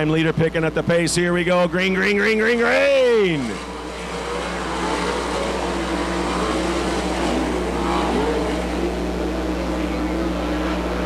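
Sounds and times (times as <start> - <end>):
low electrical hum: 0.0 - 11.0
sprint car engines at full throttle: 0.0 - 11.0.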